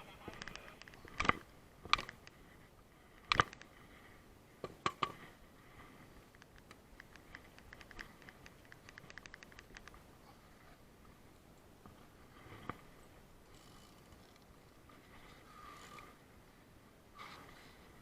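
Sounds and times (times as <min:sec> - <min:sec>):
fishing gear knocks and clicks: 0:00.2 - 0:02.4, 0:03.3 - 0:03.7, 0:06.3 - 0:10.0.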